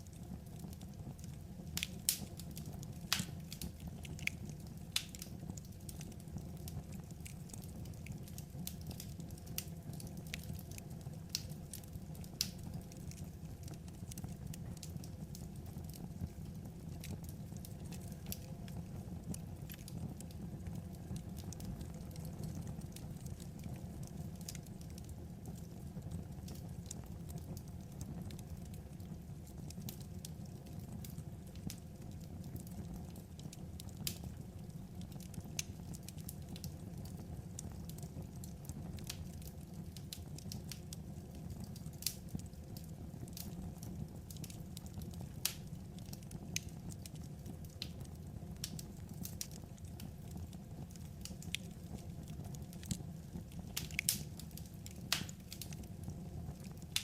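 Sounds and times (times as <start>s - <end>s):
fire rumbling: 0.0s - 57.0s
firewood crackling and popping: 0.0s - 57.0s.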